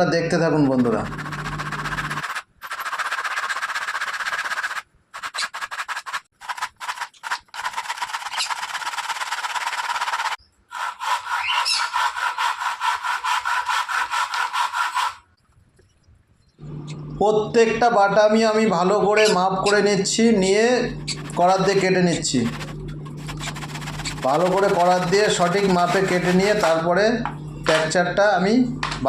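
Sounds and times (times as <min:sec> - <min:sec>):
hand saw cutting wood: 0:00.8 - 0:15.3, 0:20.5 - 0:26.8.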